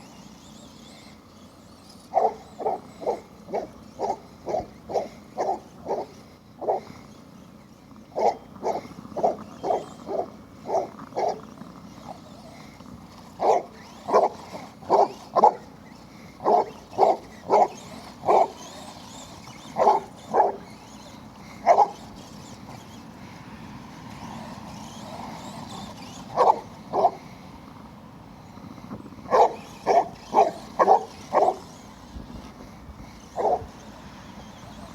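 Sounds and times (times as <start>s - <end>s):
dog barking: 2.1s - 6.9s, 8.2s - 11.4s, 13.4s - 15.6s, 16.4s - 18.6s, 19.8s - 20.6s, 21.6s - 22.0s, 26.4s - 27.2s, 29.3s - 31.7s, 33.4s - 33.7s.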